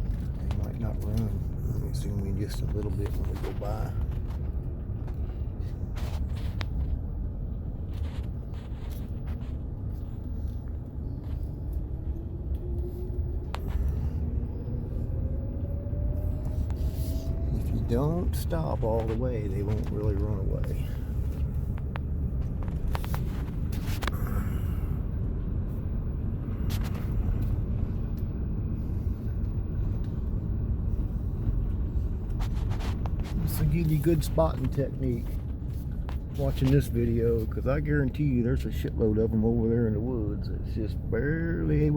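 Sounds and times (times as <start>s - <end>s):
car engine and tyres rumbling: 0.0s - 41.9s.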